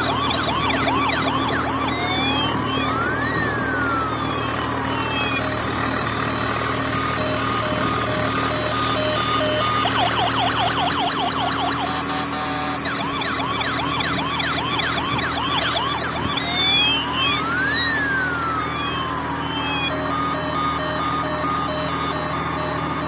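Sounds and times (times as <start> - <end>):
electronic siren yelp and wail: 0.0 - 23.0
steady hum: 0.0 - 23.0.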